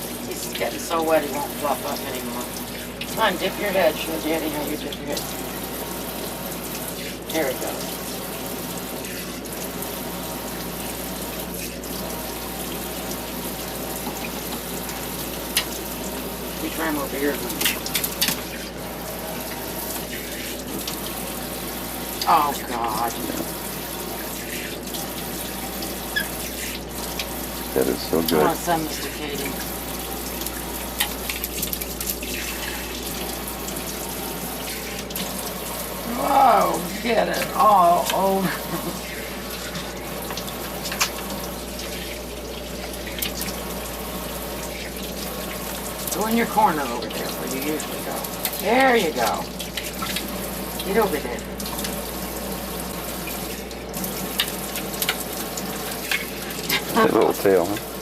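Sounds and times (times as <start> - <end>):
tap water running into sink: 0.0 - 58.0
splashes and clicks: 30.4 - 32.4, 40.2 - 41.4, 42.8 - 43.6.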